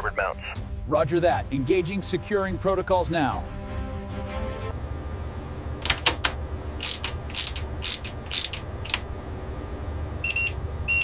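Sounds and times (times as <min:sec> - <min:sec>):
steady low hum: 0:04.7 - 0:11.0
mechanical clicks and clanks: 0:05.8 - 0:09.1
short beeps: 0:10.2 - 0:11.0.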